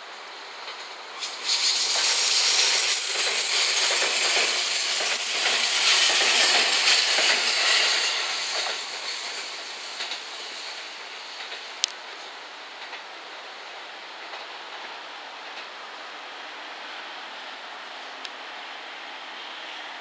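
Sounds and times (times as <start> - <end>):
steel wheels rushing on rail: 0.0 - 20.0
wheels clicking over rail joints: 0.1 - 13.1.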